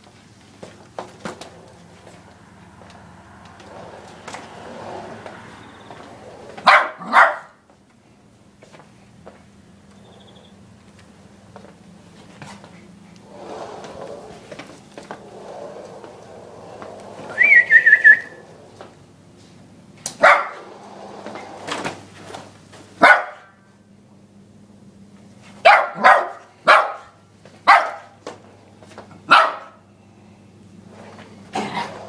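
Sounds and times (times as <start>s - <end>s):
high wavering whine: 1.4s - 6.7s, 13.2s - 19.2s
puppy barking: 6.6s - 7.6s, 20.2s - 20.6s, 23.0s - 23.6s, 25.6s - 28.2s, 29.3s - 29.8s.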